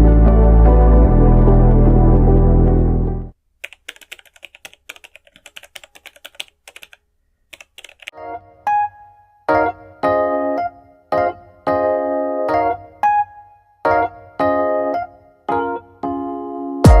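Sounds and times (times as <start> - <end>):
ambient music: 0.0 - 3.3
computer keyboard typing: 3.6 - 8.1
electric piano music: 8.2 - 17.0.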